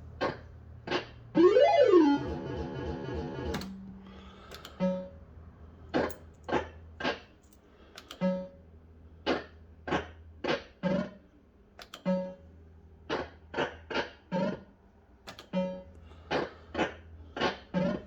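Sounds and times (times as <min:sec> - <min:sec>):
fruit machine bleeping tones: 0:01.4 - 0:03.4
sharp clicks: 0:11.8 - 0:12.1, 0:15.3 - 0:15.6.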